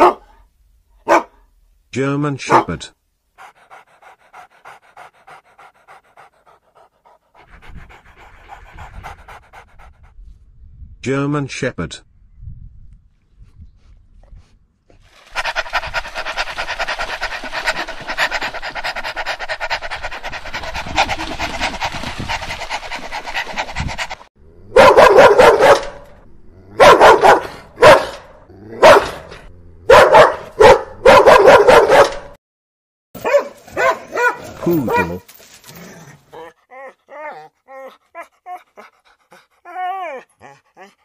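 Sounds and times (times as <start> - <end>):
dog barking: 0.0 - 0.4, 1.0 - 1.4, 2.5 - 2.8, 24.7 - 26.1, 26.8 - 29.3, 29.9 - 32.4, 33.2 - 35.2
dog whining: 36.3 - 39.0, 39.6 - 41.0.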